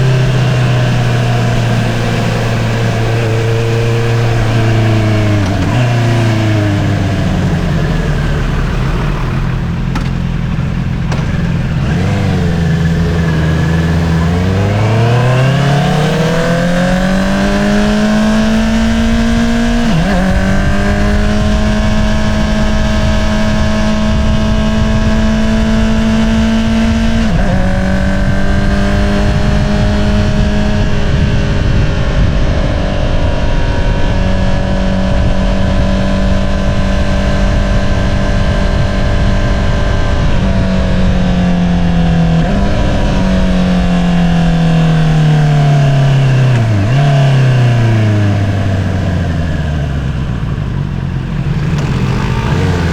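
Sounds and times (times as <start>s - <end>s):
motorcycle engine accelerating: 0.0s - 52.9s
motorcycle gear upshift: 0.2s - 32.2s, 51.3s - 52.9s.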